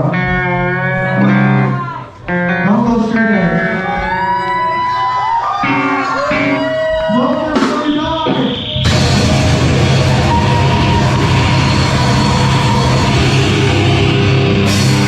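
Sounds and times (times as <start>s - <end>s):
bending guitar tones: 0.0s - 4.9s, 5.6s - 15.0s
live heavy rock band: 5.6s - 15.0s.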